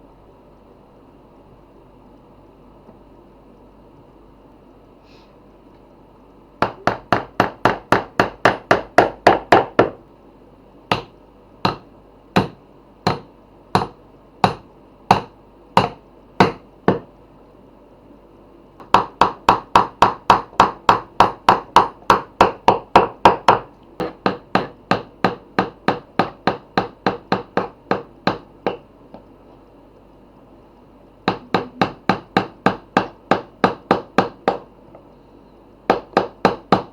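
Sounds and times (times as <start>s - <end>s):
hammer striking wood: 6.6s - 10.0s, 10.9s - 17.1s, 18.8s - 28.8s, 31.3s - 34.7s, 35.9s - 36.9s.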